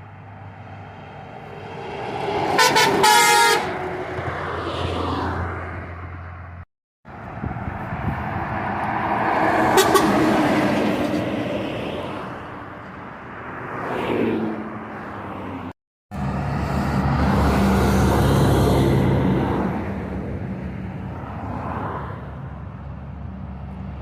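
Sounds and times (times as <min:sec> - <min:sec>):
road vehicles passing: 0:00.0 - 0:24.0.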